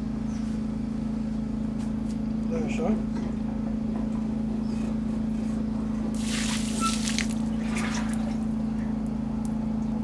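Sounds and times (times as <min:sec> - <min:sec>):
water trickling and splashing: 0:06.2 - 0:09.2.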